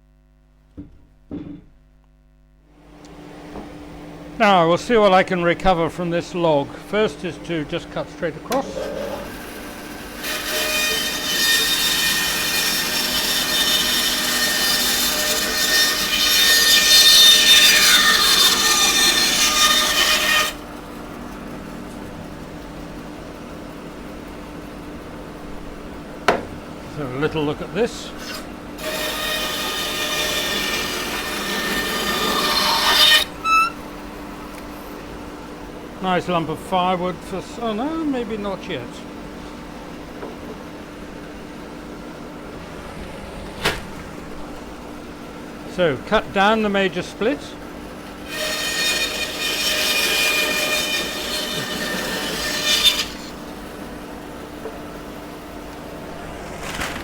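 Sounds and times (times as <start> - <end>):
saw motor hum: 4.0 - 35.6, 36.4 - 54.2
bandsaw cutting wood: 5.0 - 20.7, 26.8 - 33.8, 45.8 - 53.5
high squeak: 29.4 - 33.9.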